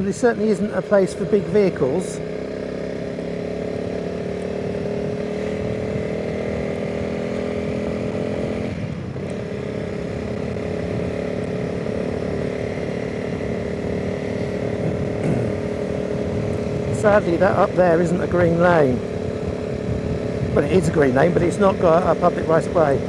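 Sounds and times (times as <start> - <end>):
motorcycle engine running: 0.0 - 23.0
wind noise: 14.4 - 21.8.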